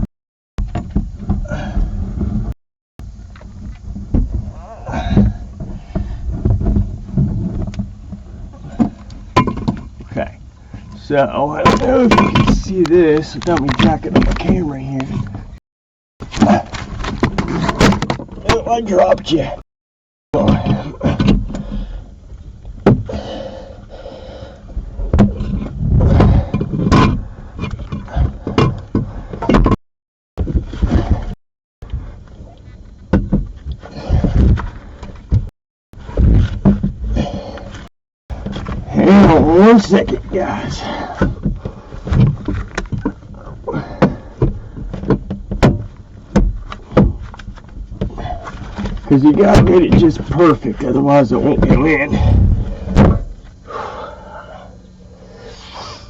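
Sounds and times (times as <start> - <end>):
knocks and thumps: 0.6 - 2.6, 3.4 - 10.2, 11.6 - 15.6, 16.2 - 19.4, 22.8 - 23.2, 24.7 - 29.8, 30.4 - 31.4, 33.0 - 43.2, 43.8 - 50.6, 51.4 - 53.6.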